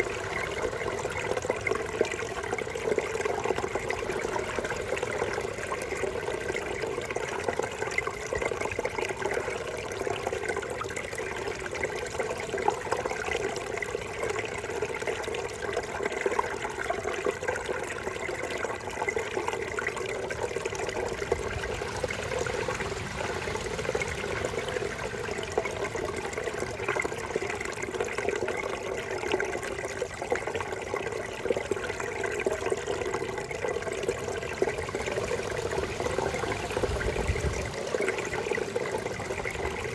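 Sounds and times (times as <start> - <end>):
brook water burbling over stones: 0.0 - 39.9.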